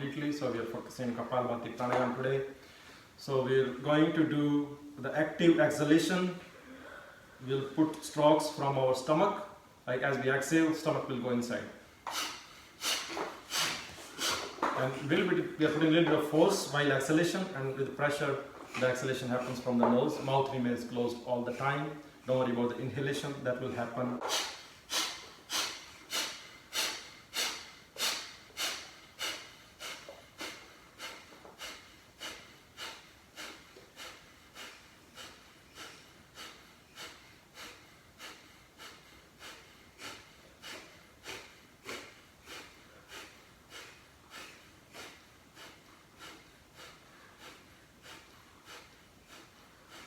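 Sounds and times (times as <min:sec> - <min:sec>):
forceful nasal exhalations: 0:12.0 - 0:16.4, 0:24.2 - 0:50.0.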